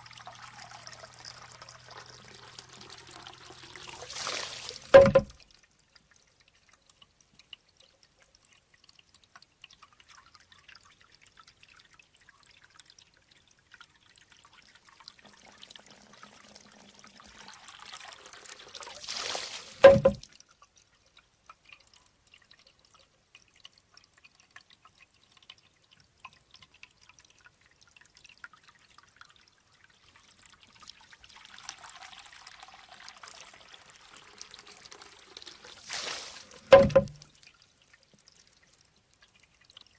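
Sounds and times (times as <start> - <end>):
water trickling: 0.0 - 39.9
bamboo tube knocking on stone: 4.9 - 5.4, 19.8 - 20.2, 36.7 - 37.2.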